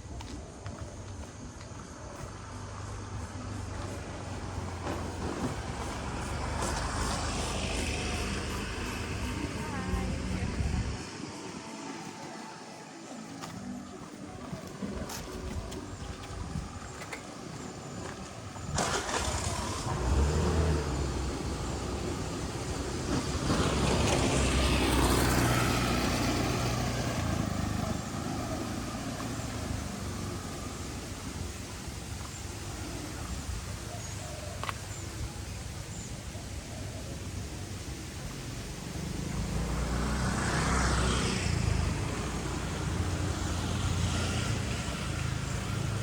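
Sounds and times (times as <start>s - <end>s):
vehicle driving past: 2.3s - 13.8s, 16.6s - 31.7s, 37.8s - 46.0s.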